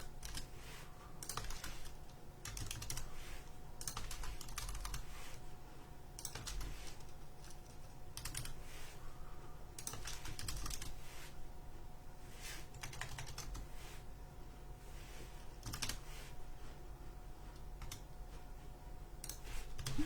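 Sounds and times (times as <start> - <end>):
typing on computer keyboard: 0.0 - 0.5, 1.2 - 3.1, 3.8 - 5.1, 6.2 - 8.6, 9.8 - 10.9, 12.8 - 13.7, 15.6 - 16.0, 17.8 - 18.0.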